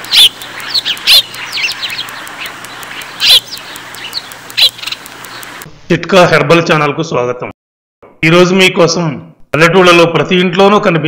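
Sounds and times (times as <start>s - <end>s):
birds chirping: 0.0s - 5.7s.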